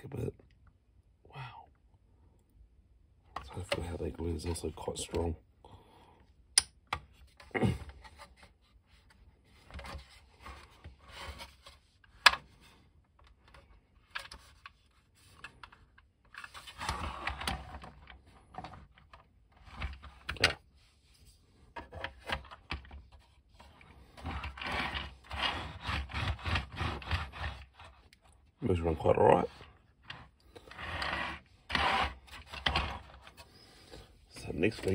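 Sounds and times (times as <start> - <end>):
plastic toy scraping and rubbing: 7.1 - 34.9.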